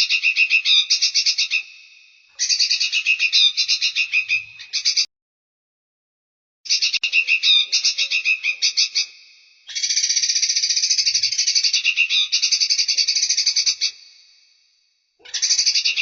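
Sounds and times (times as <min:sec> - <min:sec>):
songbird chattering: 0:00.0 - 0:01.7, 0:02.4 - 0:05.1, 0:06.7 - 0:14.0, 0:15.2 - 0:16.0
bird trill: 0:00.0 - 0:05.1, 0:06.7 - 0:14.0, 0:15.2 - 0:16.0.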